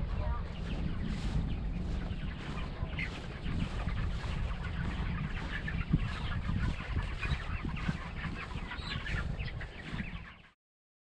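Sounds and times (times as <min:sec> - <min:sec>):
low rumble: 0:00.0 - 0:10.3
chickens peeping and clucking: 0:00.0 - 0:10.6.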